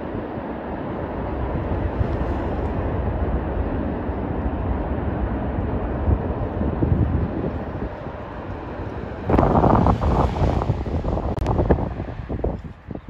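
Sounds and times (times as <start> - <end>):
train rolling on track: 0.0 - 13.0.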